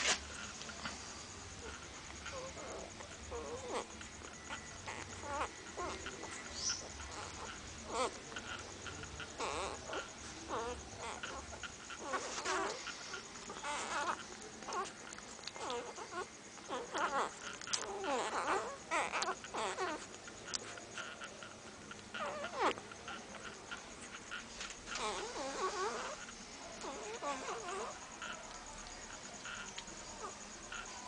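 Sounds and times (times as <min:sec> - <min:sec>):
puppies whimpering and squeaking: 0:00.0 - 0:31.0.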